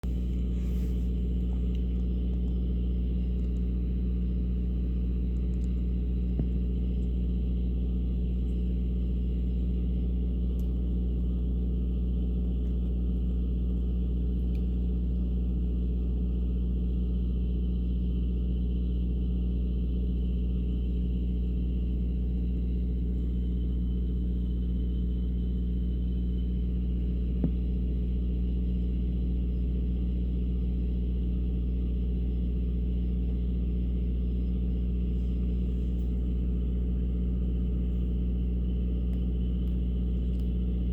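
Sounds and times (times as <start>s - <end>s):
faint click: 39.1s - 40.6s.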